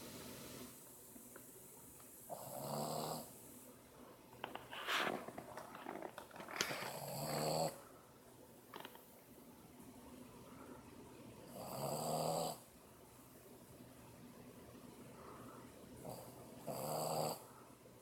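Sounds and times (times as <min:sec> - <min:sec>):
dog snoring: 0:02.3 - 0:03.4, 0:06.8 - 0:07.8, 0:11.5 - 0:12.7, 0:16.0 - 0:17.5.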